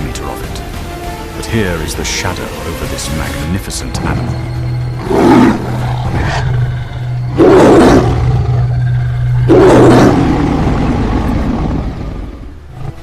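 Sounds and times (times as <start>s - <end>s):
tiger roaring: 5.0s - 13.0s.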